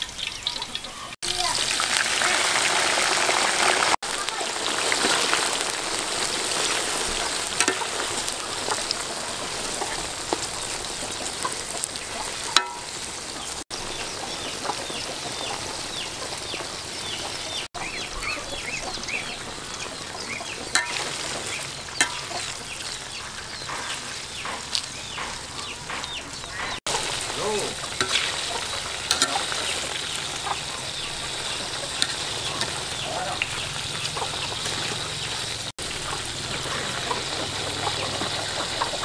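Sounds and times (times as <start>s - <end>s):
deep-frying sizzle: 0.0s - 39.0s
metal ladle clicking on pan: 7.6s - 7.9s, 12.5s - 13.0s, 20.8s - 21.1s, 29.1s - 29.4s.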